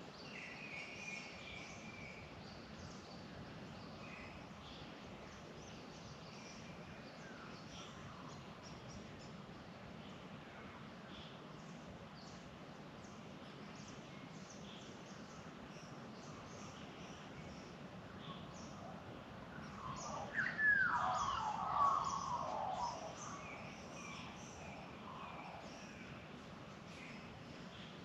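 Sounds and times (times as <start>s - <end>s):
small birds chirping: 11.1s - 28.0s.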